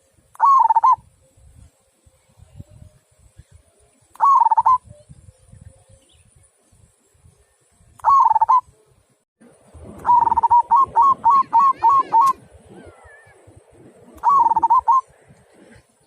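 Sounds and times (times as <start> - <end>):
dove cooing: 0.4 - 1.0, 4.2 - 4.9, 8.0 - 8.7, 10.0 - 15.8.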